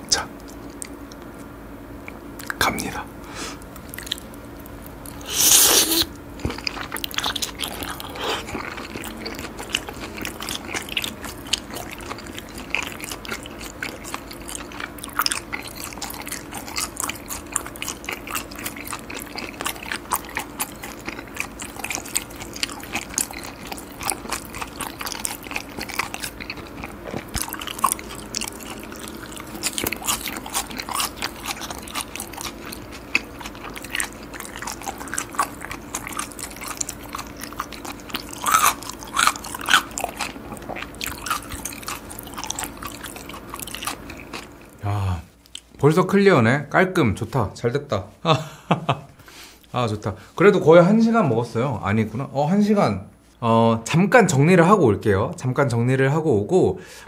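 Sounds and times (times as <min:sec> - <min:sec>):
person chewing crunchy raw fish: 0:03.5 - 0:45.8.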